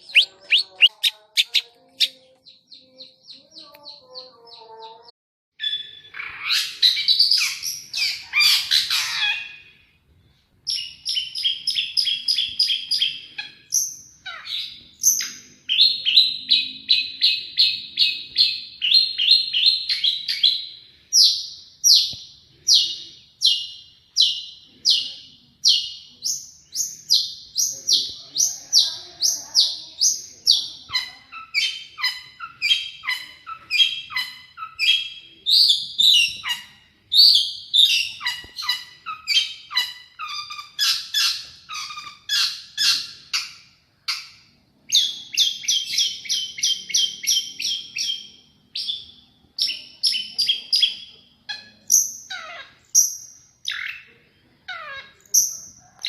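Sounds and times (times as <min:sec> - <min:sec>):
shrike singing sharp notes: 0:00.0 - 0:01.6.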